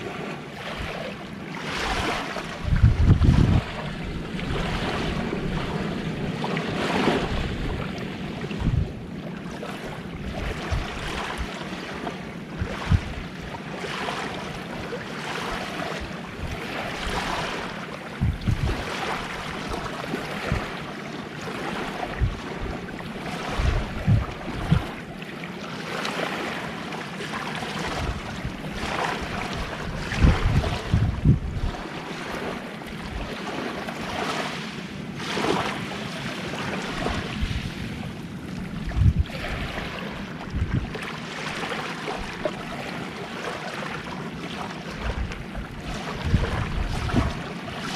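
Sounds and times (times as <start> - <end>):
sea waves washing onto beach: 0.0 - 47.9
wind thumping on microphone: 1.7 - 9.2, 10.2 - 11.6, 12.5 - 13.6, 15.4 - 20.9, 21.9 - 25.0, 27.8 - 33.4, 36.8 - 41.2, 45.0 - 47.9.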